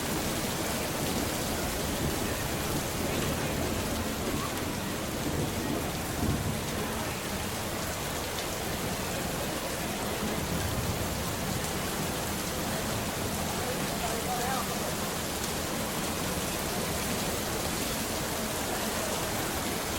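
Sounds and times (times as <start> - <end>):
rain hiss: 0.0 - 19.9
low thunder rumbling: 0.6 - 7.5.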